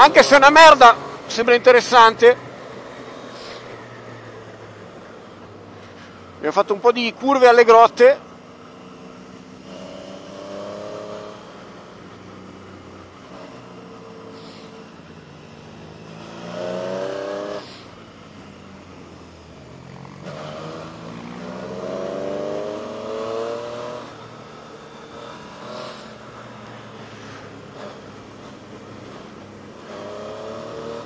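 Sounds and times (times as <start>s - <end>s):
motorcycle engine accelerating: 8.6s - 14.9s, 15.5s - 17.8s, 19.8s - 31.0s.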